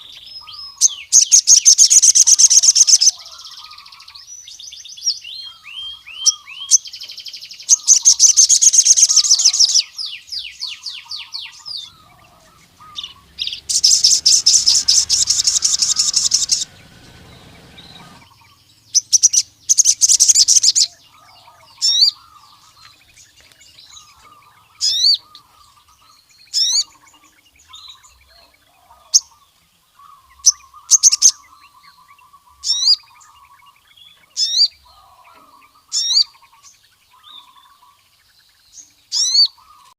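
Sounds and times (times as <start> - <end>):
bird singing high trills: 0.0 - 28.2
sharp bird chirps: 10.8 - 22.9
soft low twittering: 11.6 - 18.4.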